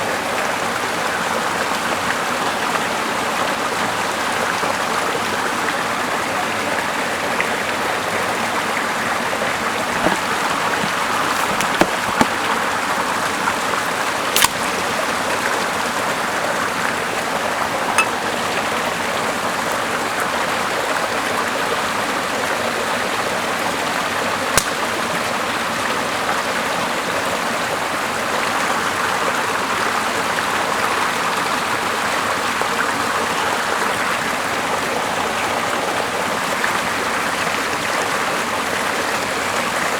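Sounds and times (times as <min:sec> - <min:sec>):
sharp clicks or pops: 0:14.4 - 0:14.7, 0:24.6 - 0:24.8.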